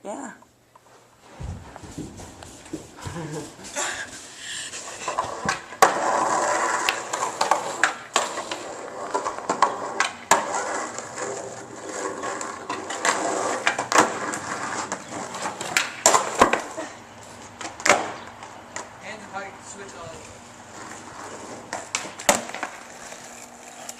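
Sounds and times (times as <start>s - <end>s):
skateboard wheels rumbling: 1.2s - 23.9s
skateboard clacking on ground: 4.7s - 16.8s, 17.5s - 19.0s, 20.8s - 23.9s.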